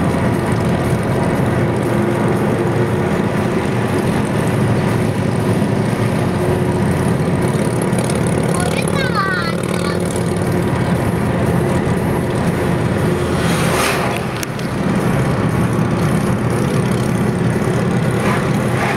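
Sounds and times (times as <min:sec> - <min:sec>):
motorcycle engines running: 0:00.0 - 0:18.9.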